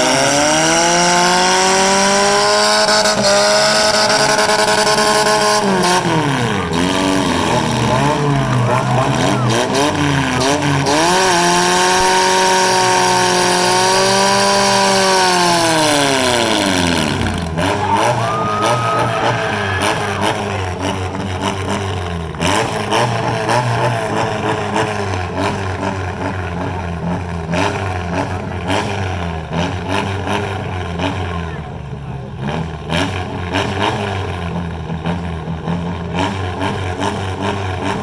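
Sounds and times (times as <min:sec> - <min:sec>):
car engines revving: 0:00.0 - 0:38.0.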